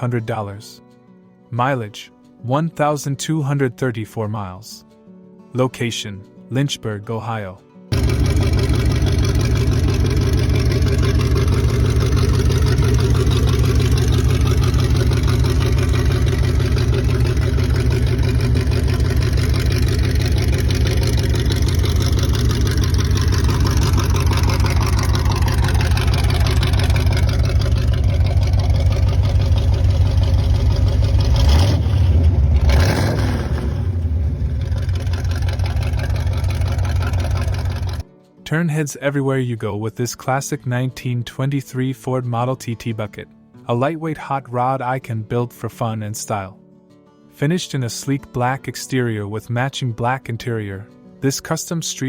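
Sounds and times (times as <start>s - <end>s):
hot rod engine pulsing exhaust: 7.9s - 38.0s.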